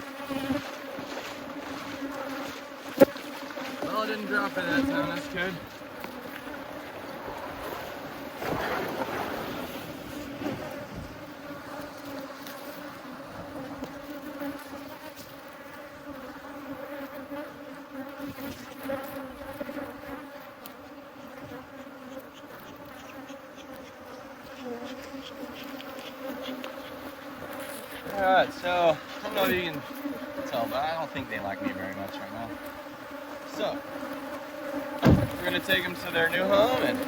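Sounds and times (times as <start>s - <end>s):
honeybees buzzing: 0.0s - 37.0s
brief knocks: 35.0s - 35.5s.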